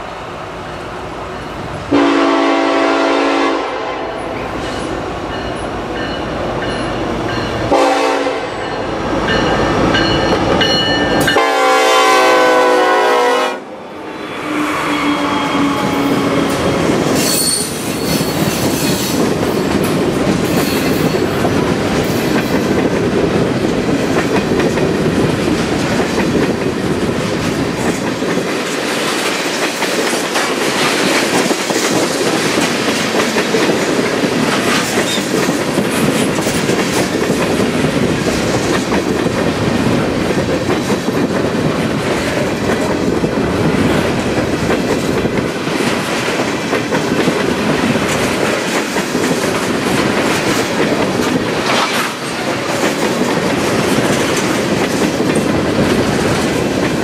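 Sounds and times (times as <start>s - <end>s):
freight train rumbling past: 0.0s - 57.0s
locomotive air horn blasts: 1.9s - 4.2s, 7.7s - 8.7s, 11.2s - 13.7s.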